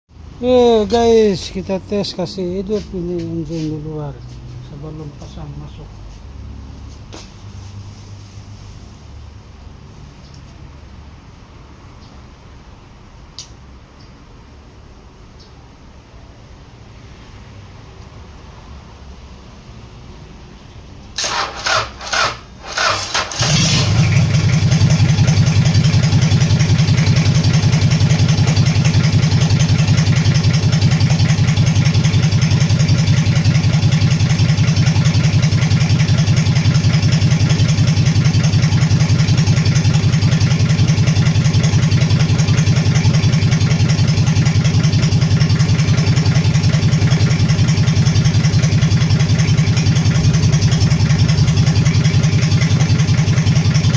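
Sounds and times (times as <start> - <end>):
diesel engine idling: 0.4 - 6.0, 21.3 - 53.9
diesel engine cranking: 21.2 - 53.9.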